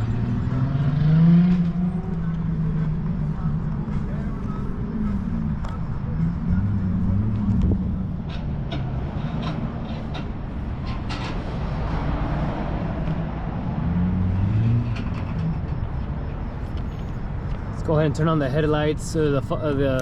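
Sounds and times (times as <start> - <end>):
car engine idling: 1.6 - 11.1.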